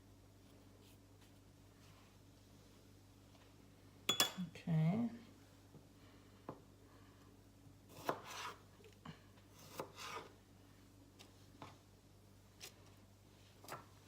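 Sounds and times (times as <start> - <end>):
knife scraping cutting board: 7.9 - 8.6, 9.6 - 10.4.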